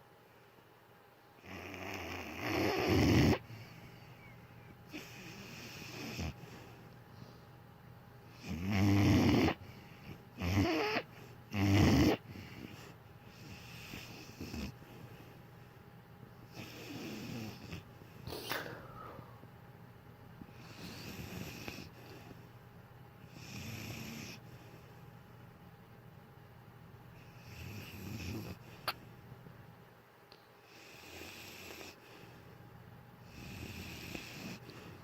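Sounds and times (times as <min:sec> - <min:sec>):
dog snoring: 0:01.4 - 0:03.8, 0:04.9 - 0:06.8, 0:08.3 - 0:15.3, 0:16.4 - 0:17.9, 0:20.5 - 0:22.4, 0:23.2 - 0:24.6, 0:27.2 - 0:29.0, 0:30.6 - 0:32.3, 0:33.2 - 0:35.0
dog breathing: 0:08.3 - 0:15.8, 0:16.4 - 0:18.2, 0:20.5 - 0:22.5, 0:33.2 - 0:35.0.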